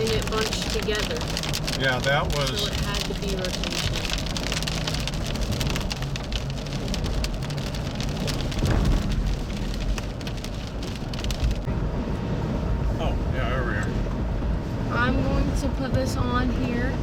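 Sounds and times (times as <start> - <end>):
rain ticking on vehicle roof: 0.0 - 17.0
vehicle rumble: 0.0 - 17.0.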